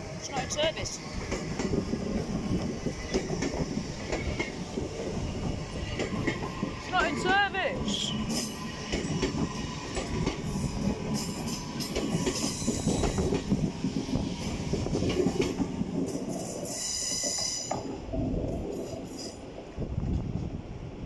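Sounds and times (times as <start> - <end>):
train wheels rumbling on rail: 0.0 - 21.0
clacks over track joints: 1.3 - 7.5, 8.4 - 10.6, 11.2 - 13.6, 14.9 - 16.2.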